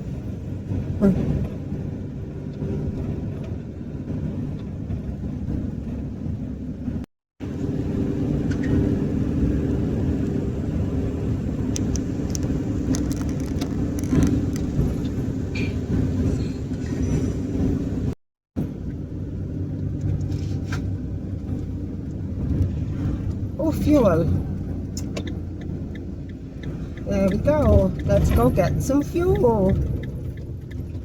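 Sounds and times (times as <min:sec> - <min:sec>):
vehicle engine and road rumble: 0:00.0 - 0:31.0
light ticks and rattles: 0:24.0 - 0:31.0.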